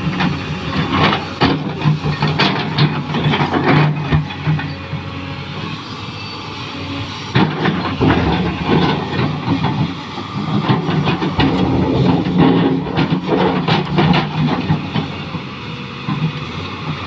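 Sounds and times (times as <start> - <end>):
excavator diesel engine running: 0.0 - 17.0
machine clanking and knocks: 7.6 - 15.2.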